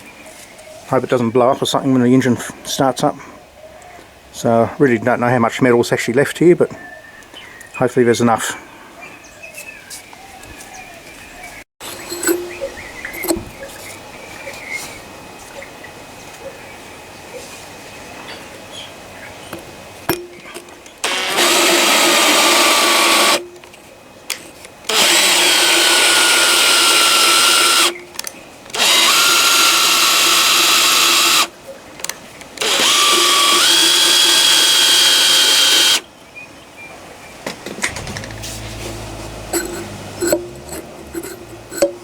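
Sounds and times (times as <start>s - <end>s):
electric drill motor whine: 21.0s - 23.4s, 24.9s - 27.9s, 28.7s - 31.5s, 32.6s - 36.0s.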